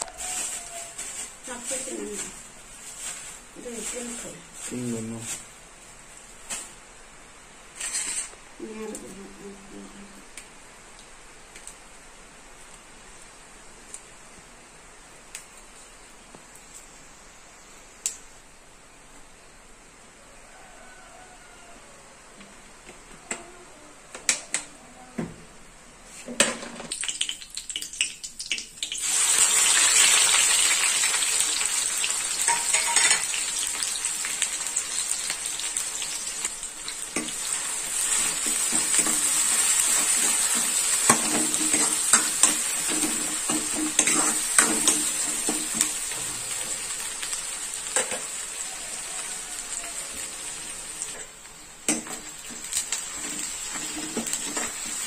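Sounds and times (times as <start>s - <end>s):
onions sizzling in hot oil: 0.0s - 9.2s, 26.6s - 55.0s
metal spatula scraping pan: 7.8s - 8.4s, 32.5s - 33.3s, 38.1s - 46.0s, 53.1s - 55.0s
spatula clinking on pan: 32.5s - 33.4s.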